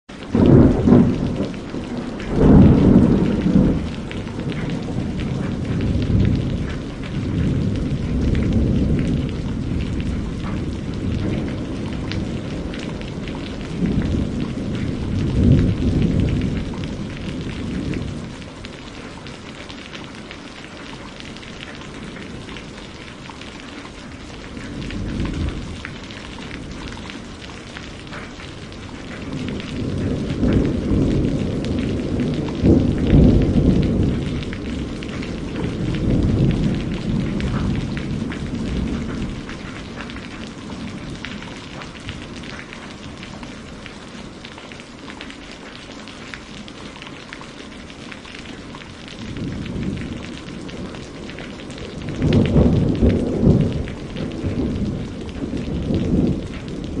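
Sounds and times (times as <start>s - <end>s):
steady rain: 0.0s - 57.0s
rolling thunder: 0.3s - 19.9s, 20.6s - 44.3s, 47.7s - 57.0s.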